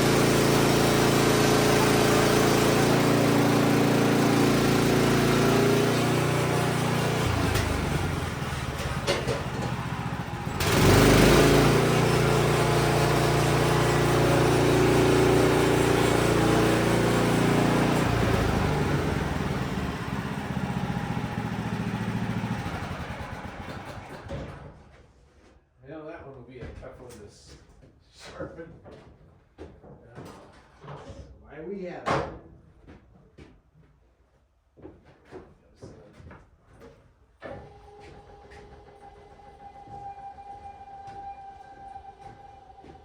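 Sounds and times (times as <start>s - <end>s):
band saw engine cutting wood: 0.0s - 23.0s.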